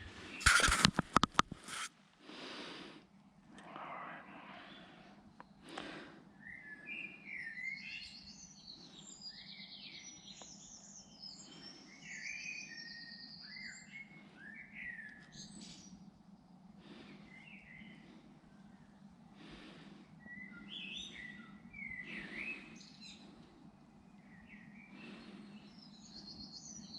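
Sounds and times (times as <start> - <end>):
brief rustle: 0.3 - 1.9
songbird trilling and chirping: 6.4 - 16.0, 20.2 - 23.2.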